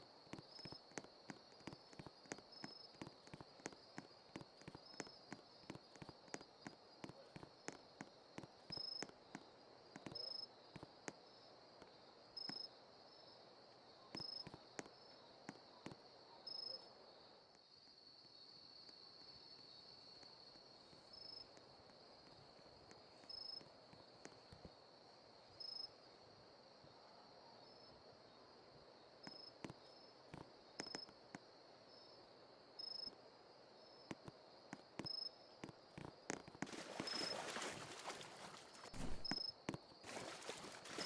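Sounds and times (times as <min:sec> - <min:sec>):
light clicking footsteps: 0:00.0 - 0:11.2, 0:34.1 - 0:39.5
insects trilling: 0:33.8 - 0:41.0.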